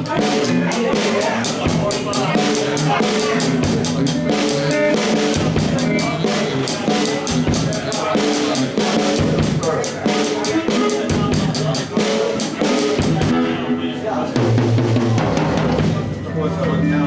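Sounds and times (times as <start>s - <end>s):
guitar and bass: 0.0s - 7.9s
drum kit beat: 0.0s - 13.6s, 14.4s - 16.2s.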